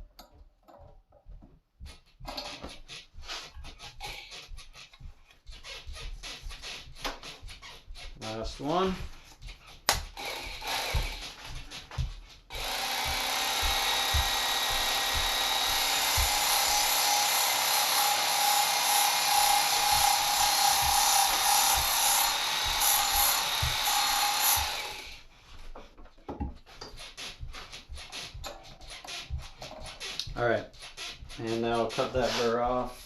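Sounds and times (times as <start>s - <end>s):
belt grinder grinding metal: 9.7s - 25.2s, 26.8s - 32.7s.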